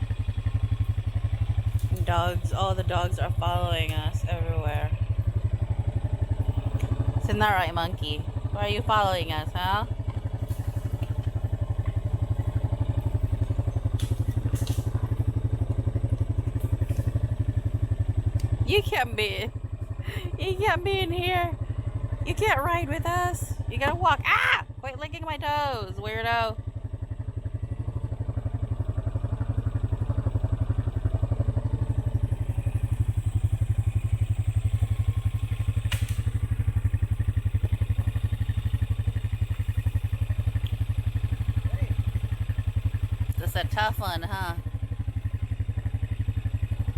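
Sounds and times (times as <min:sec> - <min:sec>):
vehicle engine running: 0:00.0 - 0:46.9
sharp snap: 0:35.8 - 0:36.4.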